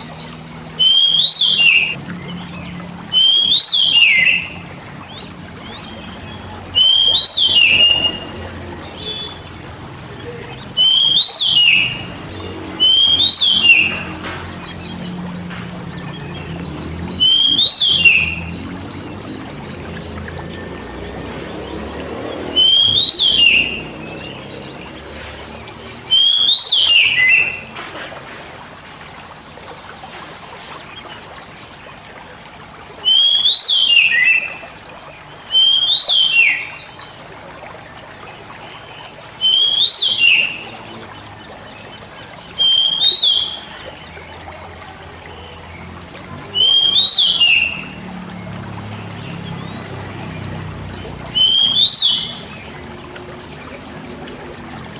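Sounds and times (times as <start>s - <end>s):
bird whistling song: 0.0s - 21.8s, 22.4s - 27.8s, 33.0s - 34.8s, 35.5s - 37.1s, 38.7s - 44.7s, 46.3s - 48.0s, 51.0s - 52.8s.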